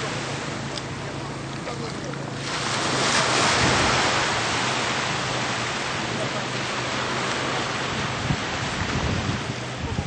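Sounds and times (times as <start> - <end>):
low steady engine hum: 0.0 - 10.0
rushing water: 0.0 - 10.0
wind buffeting microphone: 2.8 - 10.0.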